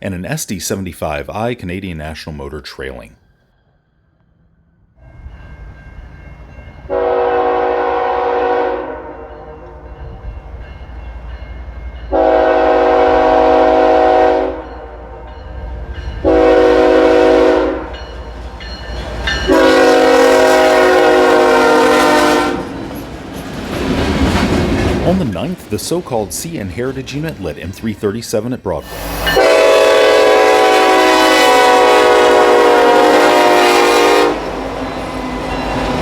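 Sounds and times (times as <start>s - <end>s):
low rumble of locomotives: 3.2s - 36.0s
locomotive air horn blowing: 6.9s - 9.9s, 12.1s - 15.2s, 16.2s - 18.0s, 19.5s - 22.8s, 28.8s - 34.6s.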